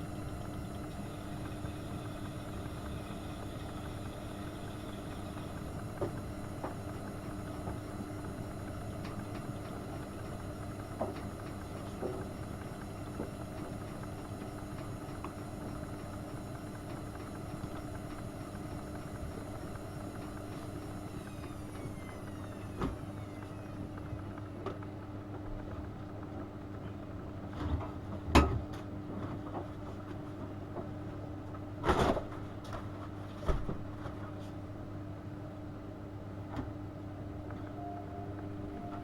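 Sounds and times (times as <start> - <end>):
washing machine running: 0.0 - 39.0
washing machine whine: 0.0 - 39.0
washing machine knocks and clunks: 27.6 - 29.3.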